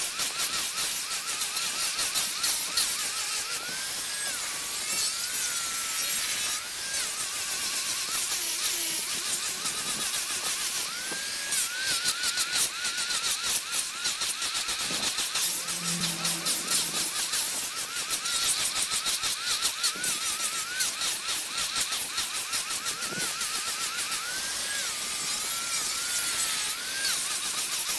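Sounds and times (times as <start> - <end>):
power tool motor whine: 0.0 - 27.9
gritty hiss of wood cutting: 14.6 - 19.3.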